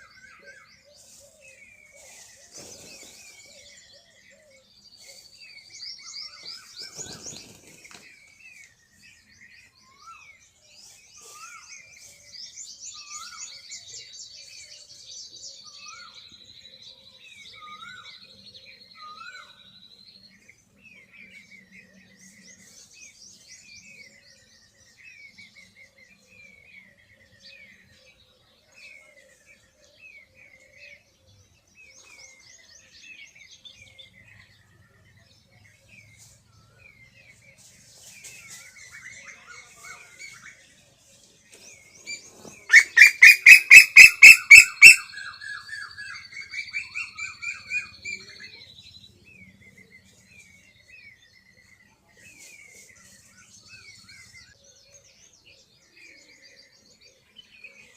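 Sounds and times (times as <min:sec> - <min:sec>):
small birds chirping: 0:00.0 - 0:57.9
high thin bird trills: 0:42.7 - 0:45.0.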